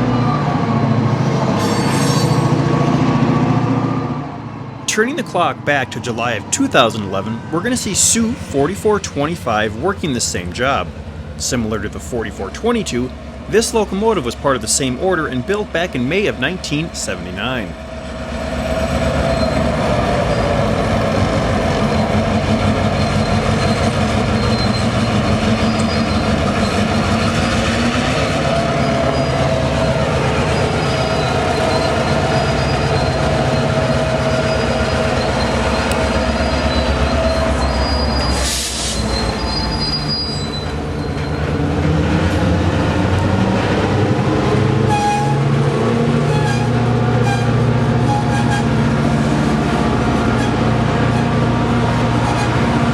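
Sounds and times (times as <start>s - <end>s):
diesel locomotive engine under load: 0.0s - 52.9s
high squeal: 1.1s - 2.6s, 17.8s - 21.0s, 21.7s - 41.6s.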